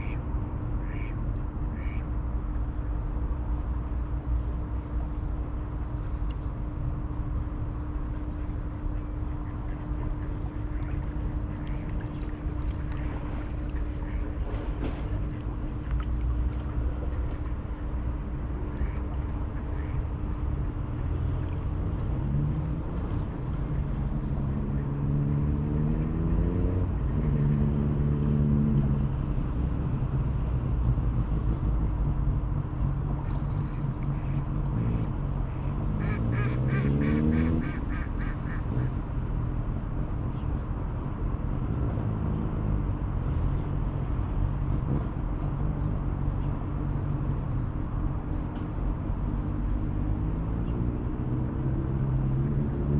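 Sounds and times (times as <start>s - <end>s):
river rumble: 0.0s - 52.9s
engine accelerating past: 24.4s - 29.0s, 35.8s - 38.9s
ducks quacking: 36.0s - 38.7s.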